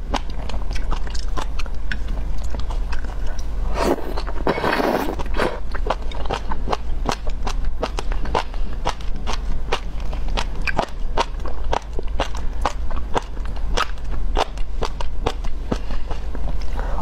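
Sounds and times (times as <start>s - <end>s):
slurping: 2.8s - 6.5s.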